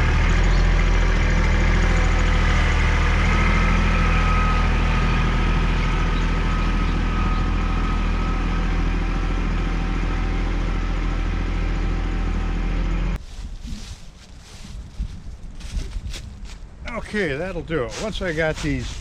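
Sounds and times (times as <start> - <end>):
tractor diesel engine idling: 0.0 - 13.2.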